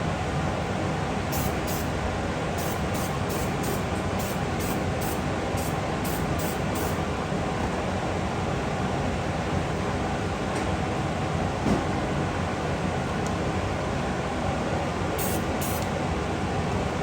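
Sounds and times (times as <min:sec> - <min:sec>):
short hisses of spray: 0:01.3 - 0:01.9, 0:02.6 - 0:07.0, 0:15.2 - 0:15.8.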